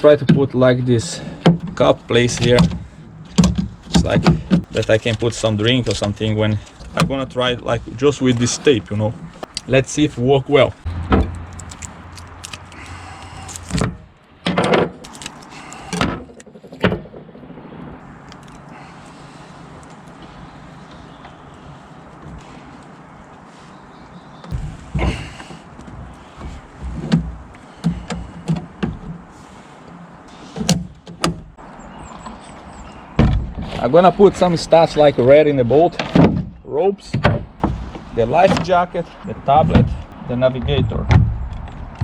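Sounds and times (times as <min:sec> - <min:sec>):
sharp knocks and clunks: 0:00.2 - 0:07.5, 0:10.8 - 0:17.4, 0:24.4 - 0:29.4, 0:30.4 - 0:31.6, 0:33.1 - 0:33.9, 0:36.0 - 0:42.0
low background rumble: 0:24.5 - 0:29.4, 0:39.0 - 0:42.0.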